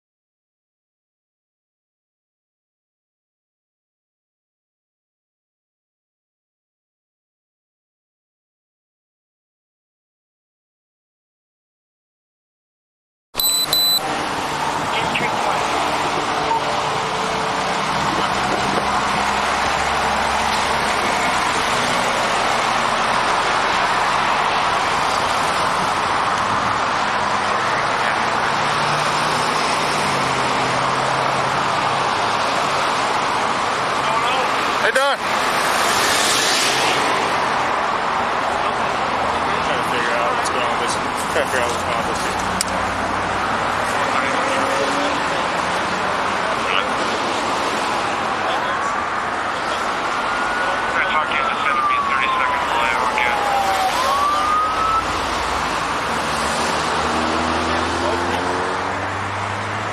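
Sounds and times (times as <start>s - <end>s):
car road noise: 13.4s - 59.9s
police siren wailing: 49.6s - 56.3s.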